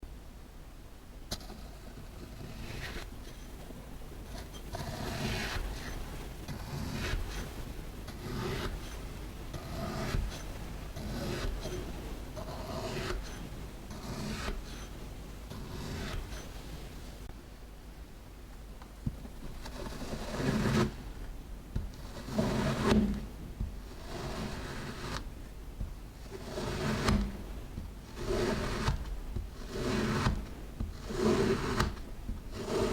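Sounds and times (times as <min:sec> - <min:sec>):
kinetic sand scraping: 0:26.2 - 0:32.9.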